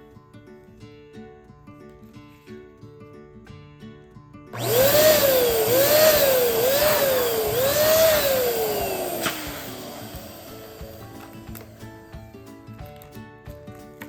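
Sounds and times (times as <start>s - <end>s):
balloon inflator motor whine: 4.6s - 11.8s.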